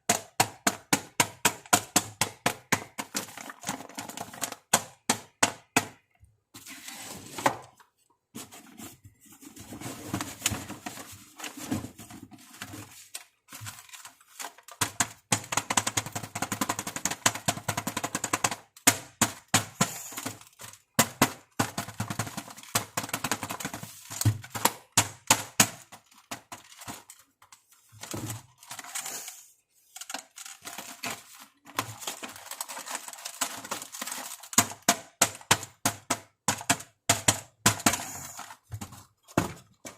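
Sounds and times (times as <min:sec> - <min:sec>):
plastic toy pieces clicking: 0:14.2 - 0:27.3, 0:28.5 - 0:38.6.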